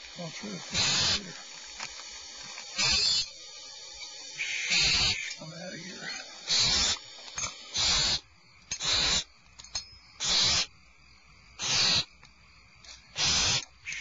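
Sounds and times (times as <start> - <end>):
owl nestlings rasping calls: 0.4 - 1.5, 2.7 - 8.2, 8.8 - 9.3, 10.2 - 10.7, 11.6 - 12.1, 13.2 - 14.0.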